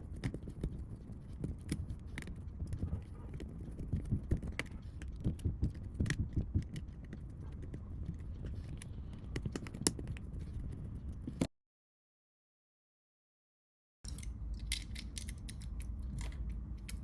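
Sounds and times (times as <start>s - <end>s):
plastic phone parts clicking: 14.1s - 17.0s.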